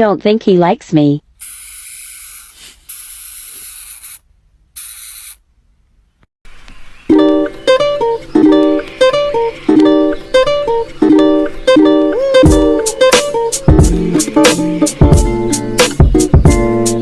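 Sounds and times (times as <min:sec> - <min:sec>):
hamster hissing: 0:01.4 - 0:04.2, 0:04.8 - 0:05.4
plucked ukulele tune: 0:07.1 - 0:17.0.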